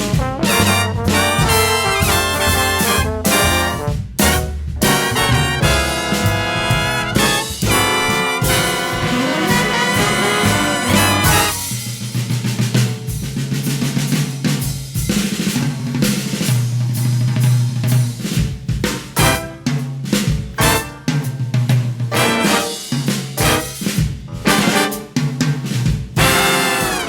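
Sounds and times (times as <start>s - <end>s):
brass section playing: 0.0s - 11.8s, 19.2s - 19.8s, 20.6s - 21.3s, 22.1s - 25.2s, 26.2s - 27.0s
drum kit playing: 0.0s - 27.0s.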